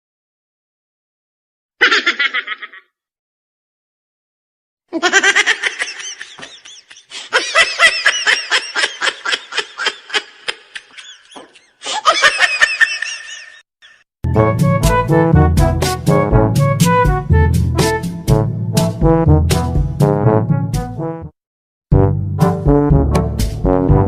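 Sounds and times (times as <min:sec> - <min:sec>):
high-pitched laughter: 0:01.8 - 0:02.9, 0:04.9 - 0:14.0.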